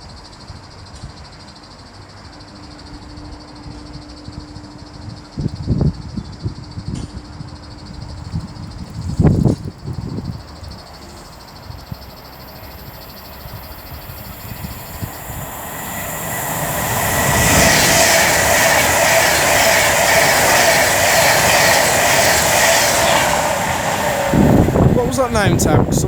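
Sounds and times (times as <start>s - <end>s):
train wheel and rail noise: 0.2s - 26.0s
electric train hum: 7.2s - 26.0s.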